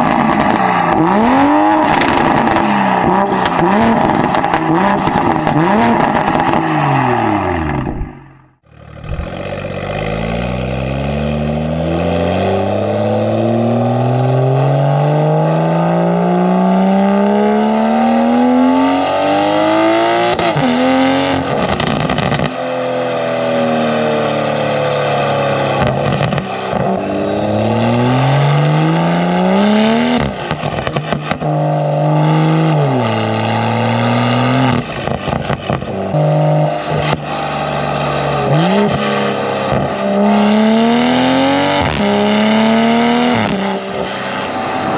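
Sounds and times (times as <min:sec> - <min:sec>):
exhaust crackles: 0:00.0 - 0:11.9
car engine accelerating hard: 0:00.0 - 0:44.9.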